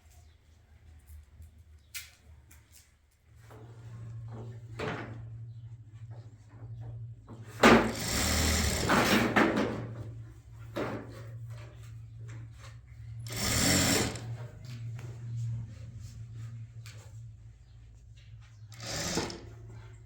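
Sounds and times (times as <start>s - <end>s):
sewing machine stitching: 7.6s - 9.6s, 13.2s - 14.4s, 18.7s - 19.7s.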